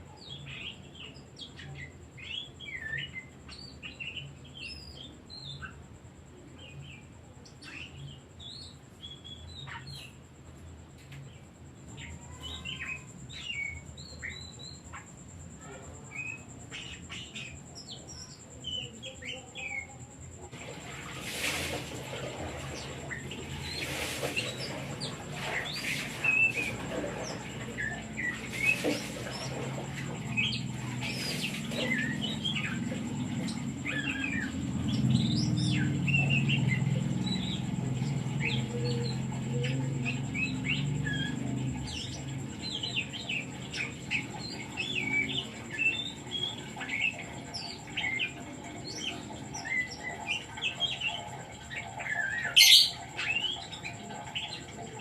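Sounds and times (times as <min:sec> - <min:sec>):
songbird chirping and whistling: 0:15.9 - 0:54.6.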